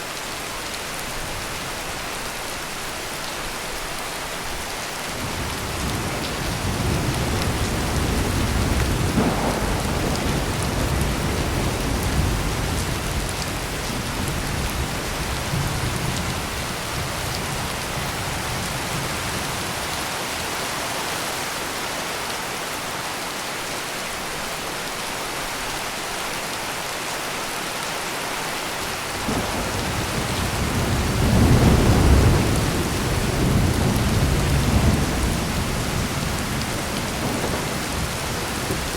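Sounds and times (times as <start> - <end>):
heavy rain pouring: 0.0 - 38.9
rolling thunder: 5.2 - 19.7, 29.2 - 38.9.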